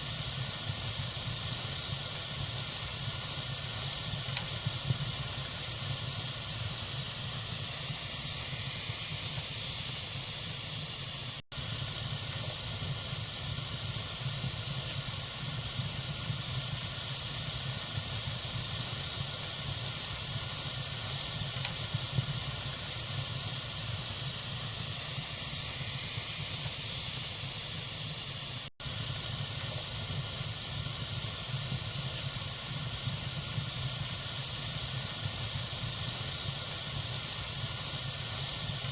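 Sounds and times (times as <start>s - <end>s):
wood fire hissing and crackling: 0.0s - 38.9s.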